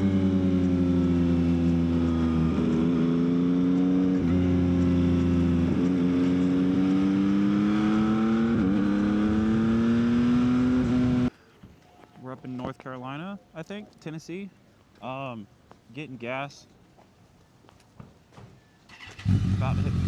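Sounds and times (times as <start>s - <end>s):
motorcycle engine running: 0.0s - 11.3s, 19.2s - 20.0s.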